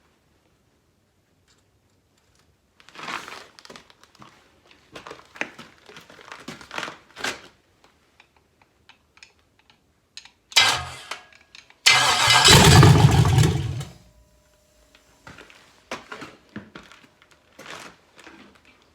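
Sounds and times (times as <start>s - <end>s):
car engine starting: 10.6s - 11.2s, 11.9s - 14.0s.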